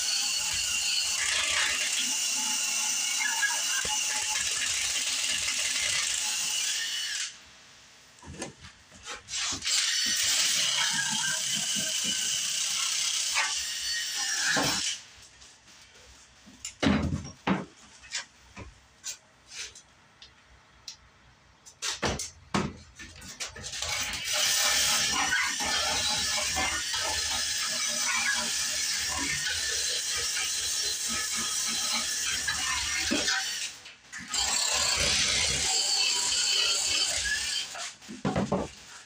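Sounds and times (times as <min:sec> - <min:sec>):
power tool running: 0:34.3 - 0:37.7.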